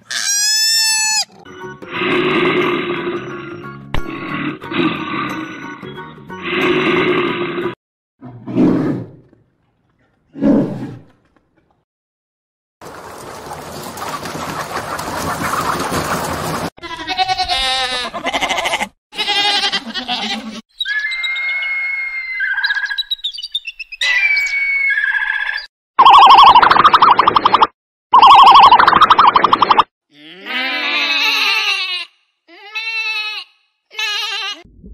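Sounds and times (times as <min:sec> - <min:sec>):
wavering bleat-like calls: 0:00.0 - 0:01.4, 0:16.8 - 0:20.6, 0:30.1 - 0:34.7
bird whistling: 0:20.8 - 0:25.7.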